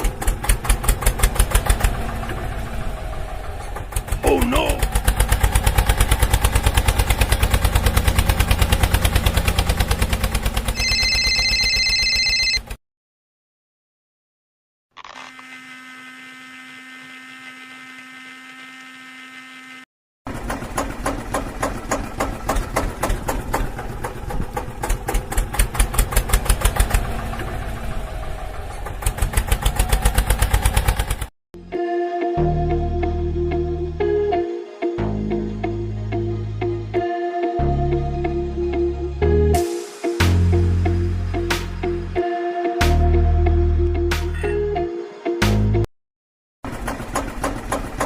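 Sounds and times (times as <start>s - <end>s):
mechanical chugging: 0.0s - 11.5s, 20.3s - 31.3s, 46.7s - 48.0s.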